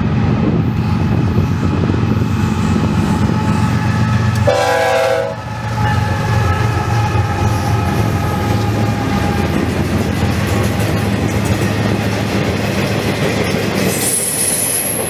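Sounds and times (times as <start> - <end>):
locomotive engines rumbling: 0.0 - 15.0
locomotive air horn: 3.0 - 9.6
freight cars rolling: 5.5 - 15.0.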